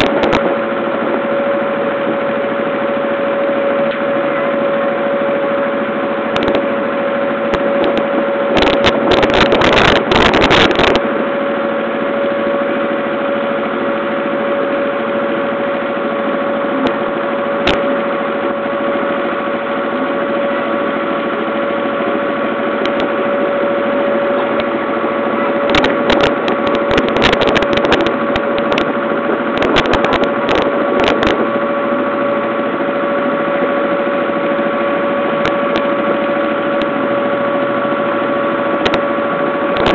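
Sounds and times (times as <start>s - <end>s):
boat engine humming: 0.0s - 39.9s
crackling noise: 7.5s - 11.0s, 25.6s - 28.9s, 29.5s - 31.4s.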